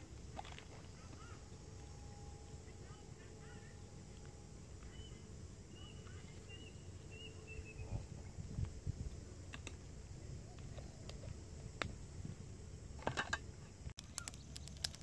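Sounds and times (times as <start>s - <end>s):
small bird chirping: 4.8s - 8.1s, 14.0s - 15.0s
sharp clicks: 14.0s - 15.0s.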